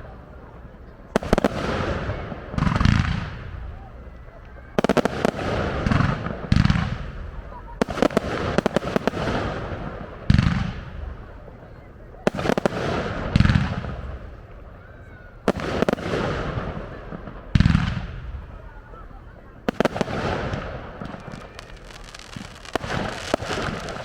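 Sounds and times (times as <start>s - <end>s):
firework shells bursting: 19.7s - 24.0s
rapid firework crackling: 19.7s - 24.0s.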